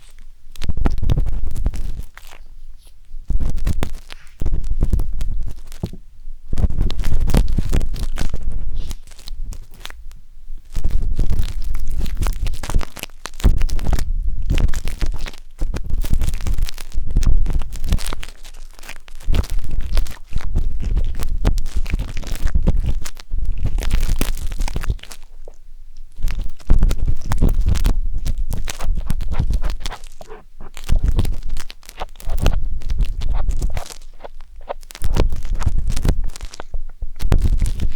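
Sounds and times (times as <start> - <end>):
wooden skewer scraping microphone: 27.0 - 37.9.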